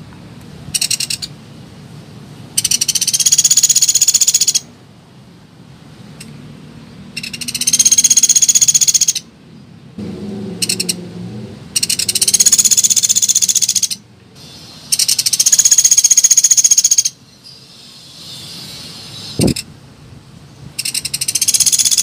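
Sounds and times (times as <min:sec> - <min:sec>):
bird rattling trills: 0:00.8 - 0:01.3, 0:02.6 - 0:04.6, 0:07.2 - 0:09.2, 0:11.8 - 0:19.7, 0:20.8 - 0:22.0.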